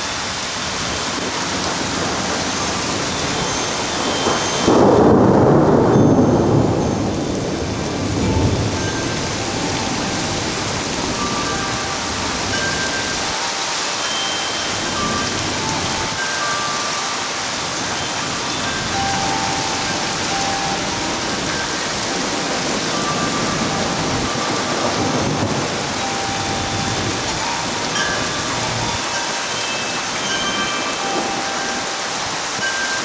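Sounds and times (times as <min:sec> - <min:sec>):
heavy rain falling: 0:00.0 - 0:33.0
low rumble of thunder: 0:01.1 - 0:11.5, 0:20.7 - 0:27.3.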